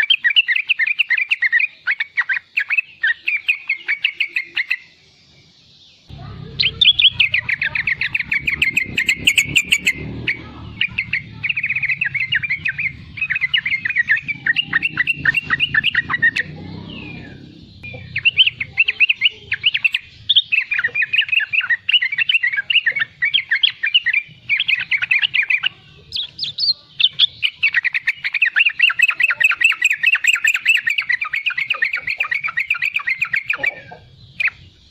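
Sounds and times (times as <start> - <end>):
bulbul chattering: 0.0 - 34.9
low hum: 6.1 - 19.0.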